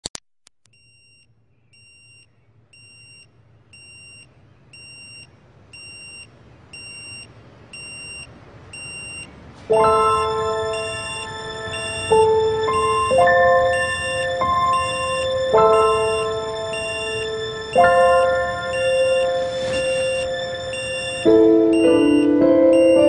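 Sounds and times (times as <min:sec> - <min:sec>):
short electronic beeps: 0:01.8 - 0:23.0
music with mallet tones: 0:09.7 - 0:23.0.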